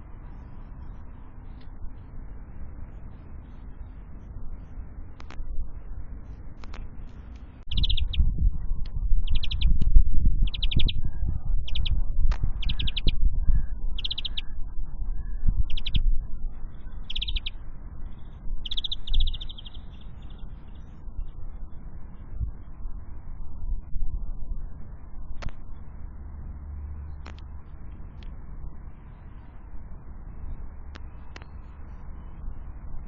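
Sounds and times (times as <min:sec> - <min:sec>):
small bird trilling calls: 0:07.7 - 0:08.4, 0:09.2 - 0:09.8, 0:10.4 - 0:21.0.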